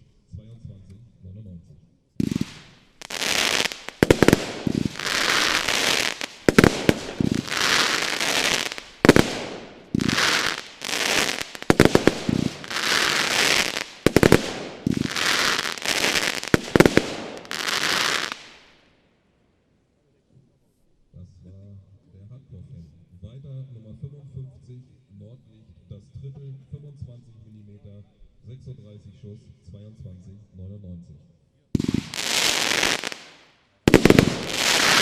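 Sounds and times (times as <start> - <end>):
firework launch thumps: 2.2 - 15.6, 31.8 - 32.2
firework bursting effects: 2.2 - 18.8, 31.8 - 35.0.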